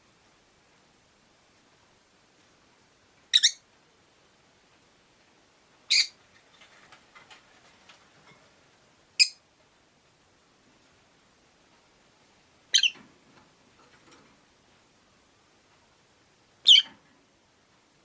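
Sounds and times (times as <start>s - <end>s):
lovebirds shrill calls: 3.3s - 3.6s, 5.9s - 6.2s, 9.2s - 9.4s, 12.7s - 13.0s, 16.6s - 16.9s.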